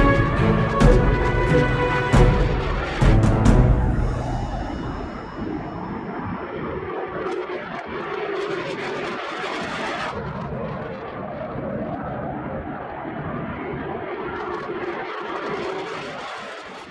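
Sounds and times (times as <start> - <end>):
aircraft engine drone: 0.0 - 7.0.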